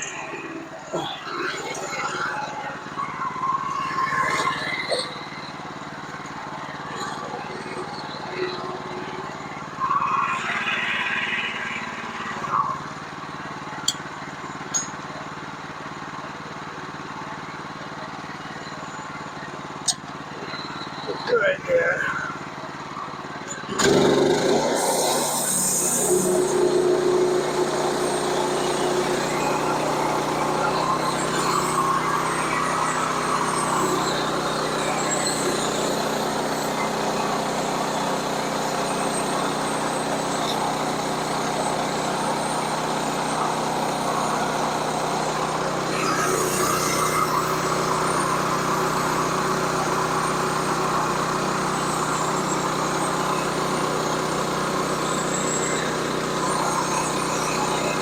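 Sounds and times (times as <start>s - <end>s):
sawmill engine running: 0.0s - 58.0s
saw blade cutting log: 23.7s - 58.0s.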